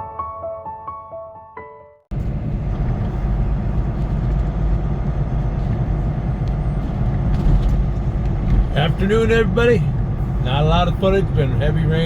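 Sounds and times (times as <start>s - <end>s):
soft piano music: 0.0s - 2.1s
road noise inside cab: 2.1s - 12.0s
truck engine rumble: 2.1s - 12.0s.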